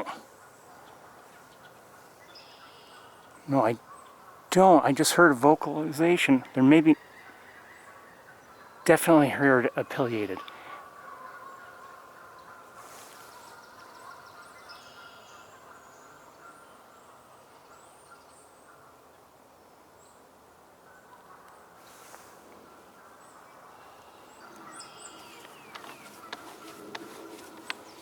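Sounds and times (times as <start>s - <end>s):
outdoor background: 0.0s - 28.0s
bird chirps: 0.4s - 4.2s, 11.2s - 18.6s, 23.0s - 28.0s.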